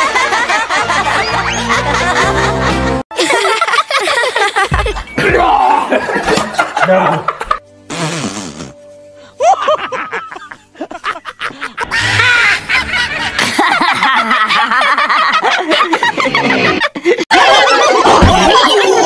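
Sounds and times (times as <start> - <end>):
cartoon voices laughing: 9.4 - 19.0.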